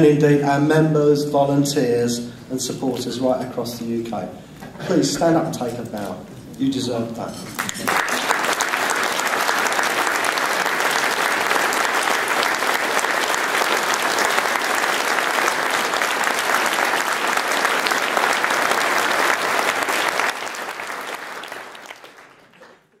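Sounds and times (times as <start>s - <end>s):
audience applauding: 7.6s - 23.0s.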